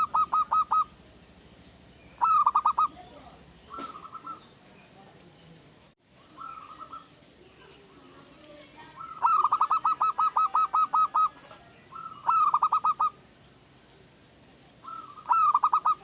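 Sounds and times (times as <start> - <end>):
dove cooing: 0.0 - 1.2, 2.2 - 4.5, 6.2 - 7.2, 9.0 - 13.2, 14.8 - 16.0.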